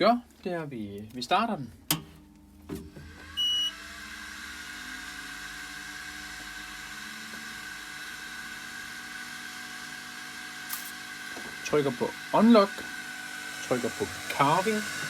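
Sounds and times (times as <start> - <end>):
machine humming and whining: 2.8 - 15.0.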